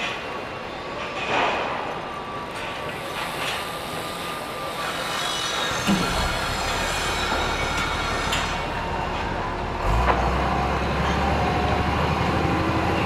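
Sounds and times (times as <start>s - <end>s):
heavy machinery engine rumble: 5.5s - 13.0s.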